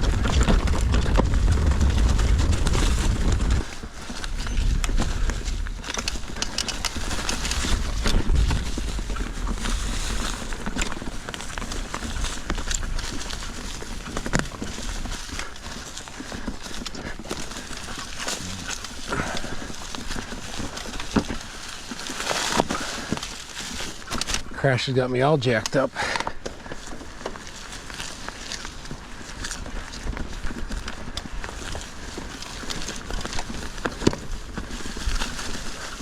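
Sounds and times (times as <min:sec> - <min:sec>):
low rumble: 0:00.0 - 0:05.9
bike clicks and rattles: 0:00.0 - 0:36.0
bike tyres scraping over rocks: 0:00.0 - 0:36.0.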